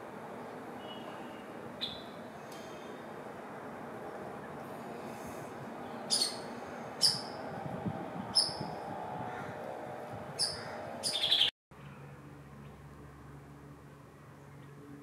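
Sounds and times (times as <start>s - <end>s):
steady low background noise: 0.0s - 15.0s
bird giving sharp high calls: 0.8s - 2.2s, 6.1s - 7.4s, 8.3s - 9.5s, 10.4s - 11.5s.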